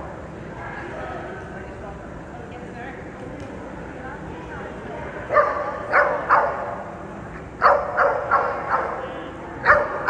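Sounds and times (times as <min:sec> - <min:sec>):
dog barking: 0:05.3 - 0:06.7, 0:07.6 - 0:09.0, 0:09.6 - 0:10.0.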